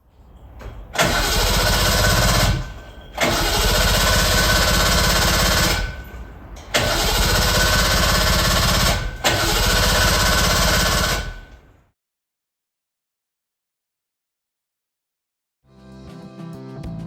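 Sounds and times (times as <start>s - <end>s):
two-stroke engine revving: 1.0s - 6.0s, 6.8s - 11.4s.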